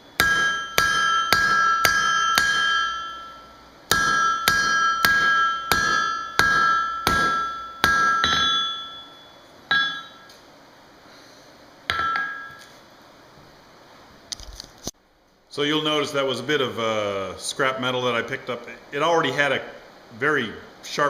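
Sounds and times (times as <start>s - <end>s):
hammer striking steel on anvil: 0.0s - 10.4s, 11.9s - 12.7s.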